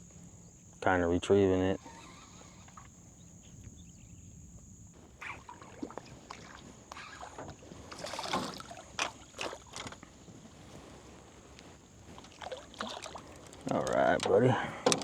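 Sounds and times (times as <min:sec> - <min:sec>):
water splashing: 0:05.2 - 0:10.1, 0:12.1 - 0:14.4.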